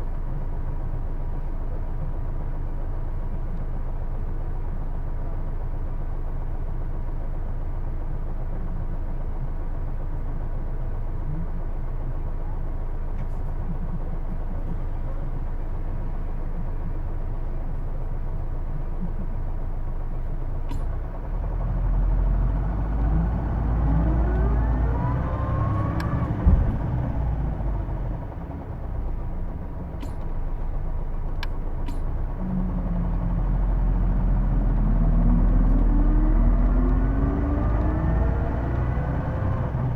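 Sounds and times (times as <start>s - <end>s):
bus diesel engine: 0.0s - 39.9s
drivetrain whine: 19.0s - 39.9s
thump: 26.4s - 26.9s.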